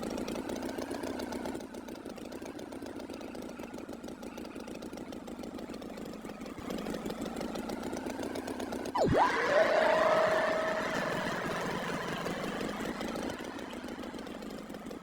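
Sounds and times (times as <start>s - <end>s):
engine running: 8.9s - 15.0s
swooping tone: 9.0s - 13.9s.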